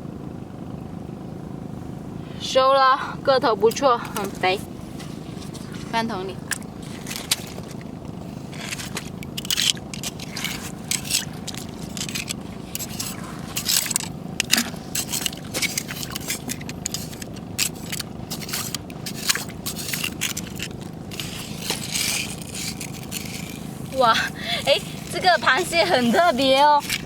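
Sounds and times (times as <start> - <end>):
footsteps crunching on shells: 5.0 - 27.0.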